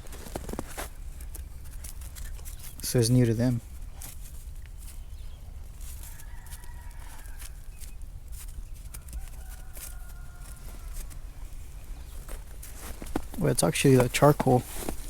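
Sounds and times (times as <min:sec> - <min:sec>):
faint rooster crowing: 0:05.7 - 0:13.0.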